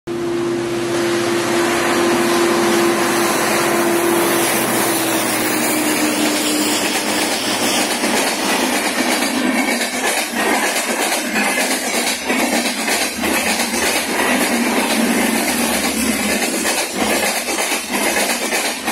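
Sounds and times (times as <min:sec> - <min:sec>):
diesel locomotive rumble: 0:00.1 - 0:18.9
train wheels rattling on track: 0:00.2 - 0:18.9.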